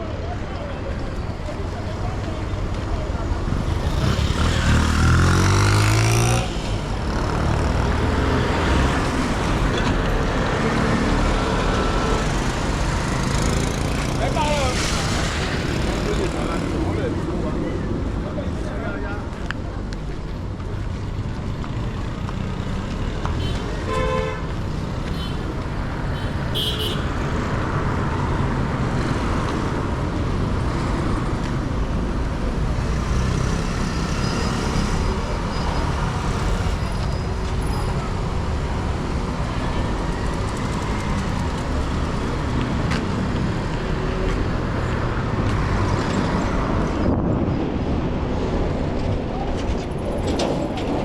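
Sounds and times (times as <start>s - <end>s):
city street traffic: 0.0s - 51.0s
car horn toot: 23.4s - 24.5s, 26.2s - 27.1s.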